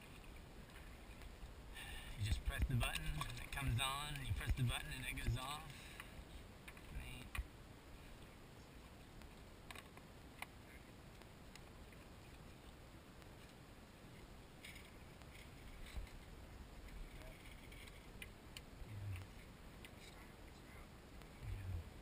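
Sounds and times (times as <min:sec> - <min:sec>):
faint background hiss: 0:00.0 - 0:22.0
soft low thumps: 0:21.4 - 0:22.0.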